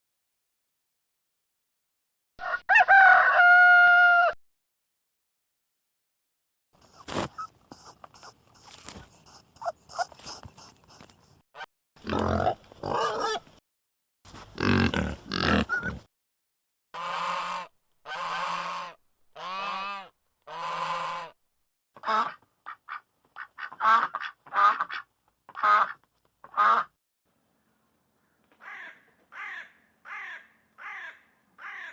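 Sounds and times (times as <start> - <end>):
animal clicks and snorts: 6.8 - 11.4
short quacking calls: 6.8 - 11.4, 17.0 - 21.4.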